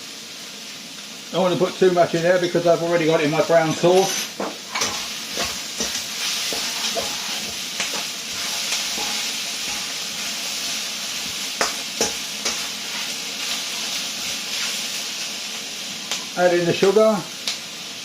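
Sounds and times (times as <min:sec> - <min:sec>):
food sizzling in a pan: 0:00.0 - 0:18.0
utensil clicking on a pan: 0:03.8 - 0:10.0, 0:11.6 - 0:13.1.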